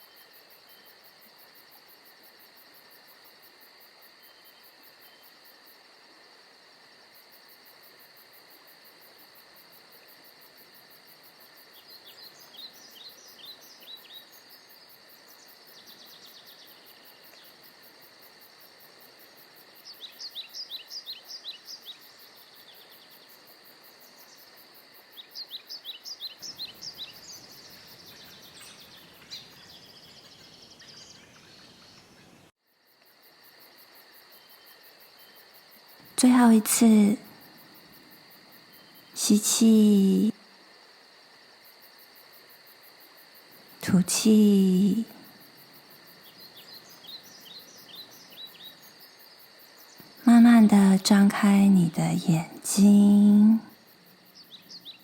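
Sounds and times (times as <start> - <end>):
songbird singing: 0.0 - 1.0, 4.1 - 5.4, 11.7 - 17.7, 19.2 - 32.5, 43.6 - 55.0.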